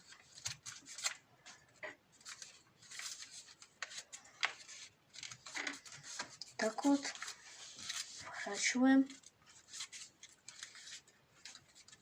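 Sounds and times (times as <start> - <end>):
paper being folded and creased: 0.0 - 12.0.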